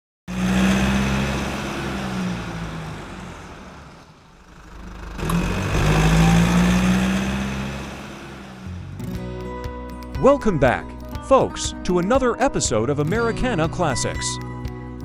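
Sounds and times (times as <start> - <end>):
car engine running: 0.3 - 10.3.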